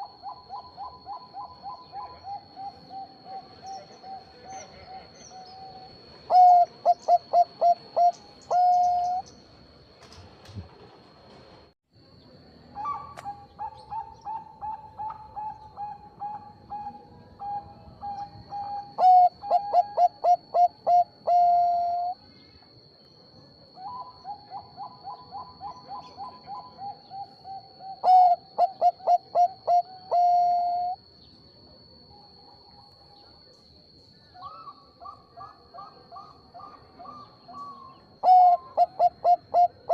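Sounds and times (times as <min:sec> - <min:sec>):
dove cooing: 0:00.0 - 0:09.3, 0:12.8 - 0:22.2, 0:23.8 - 0:31.0, 0:34.4 - 0:39.9
faint high whine: 0:00.0 - 0:39.9.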